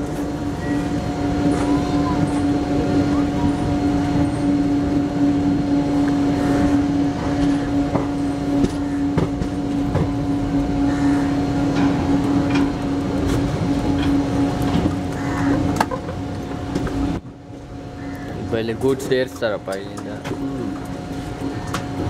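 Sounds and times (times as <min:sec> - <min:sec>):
train wheels on rail: 0:00.0 - 0:17.8
continuous hum: 0:00.0 - 0:22.0
wheels clicking over rail joints: 0:11.6 - 0:17.2, 0:18.3 - 0:22.0.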